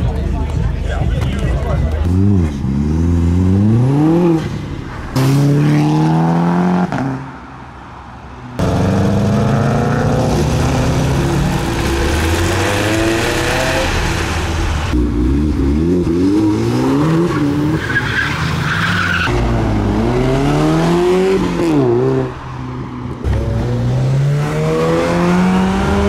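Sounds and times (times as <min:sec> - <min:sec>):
car engine revving hard: 0:08.6 - 0:17.4, 0:23.3 - 0:26.0.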